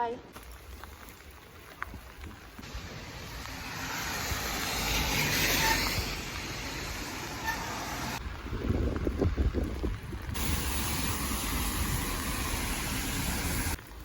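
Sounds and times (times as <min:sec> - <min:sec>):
tyres hissing on wet road: 0:02.6 - 0:09.1, 0:10.2 - 0:14.0.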